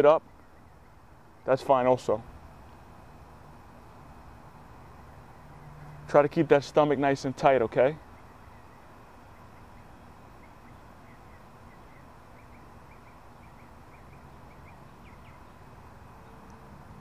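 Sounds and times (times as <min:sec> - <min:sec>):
steady low hiss: 0:00.0 - 0:17.0
small bird chirping: 0:08.0 - 0:16.6.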